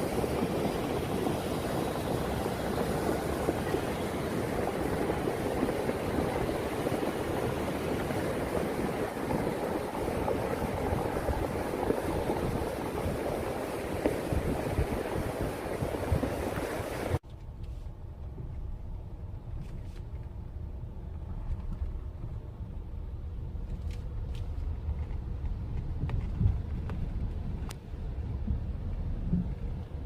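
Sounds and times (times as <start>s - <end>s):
rushing water: 0.0s - 17.2s
steady low rumble: 17.2s - 30.0s.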